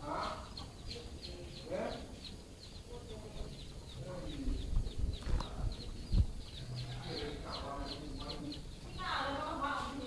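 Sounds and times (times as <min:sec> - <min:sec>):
small bird chirping: 0:00.0 - 0:10.0
dull low thumps: 0:04.4 - 0:06.6.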